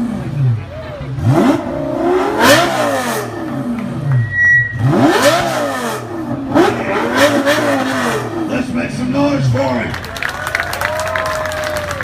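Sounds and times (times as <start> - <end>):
sports car engine revving: 0.0 - 9.6.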